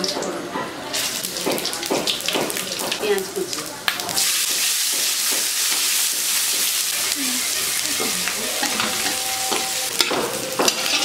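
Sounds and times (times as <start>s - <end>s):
onions sizzling in oil: 0.9s - 11.0s
spatula scraping metal pan: 6.7s - 11.0s.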